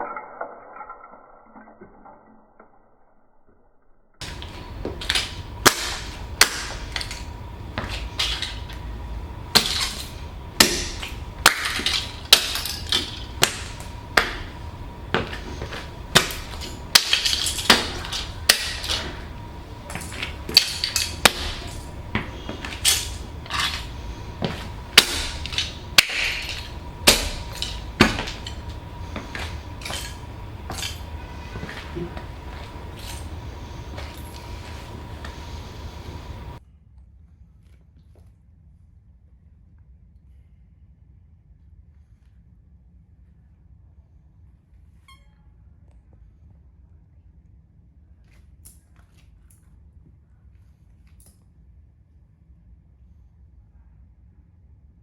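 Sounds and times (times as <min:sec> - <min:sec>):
boots stomping on plastic toy: 0:04.2 - 0:08.8, 0:09.5 - 0:36.6.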